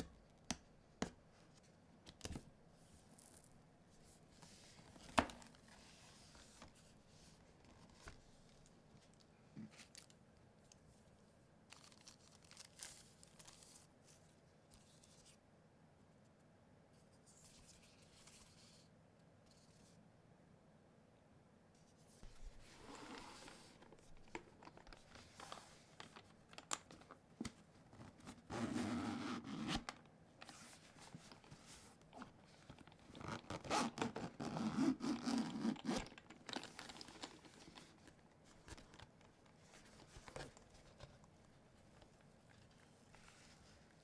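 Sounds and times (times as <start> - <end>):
wrapping and cardboard rustling: 27.9 - 44.0.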